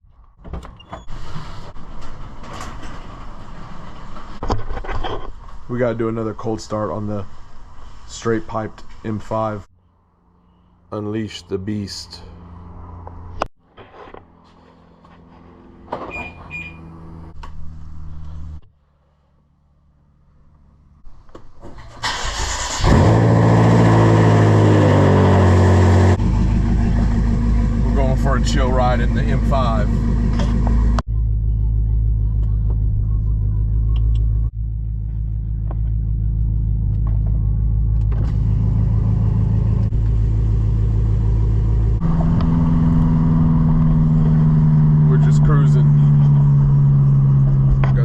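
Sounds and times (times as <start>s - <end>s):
car engine idling: 22.1s - 48.0s.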